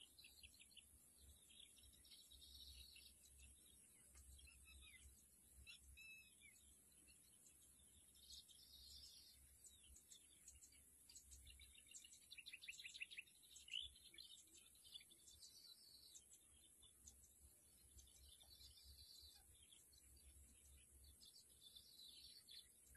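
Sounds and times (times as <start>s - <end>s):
bird chirps and calls: 0.0s - 22.9s.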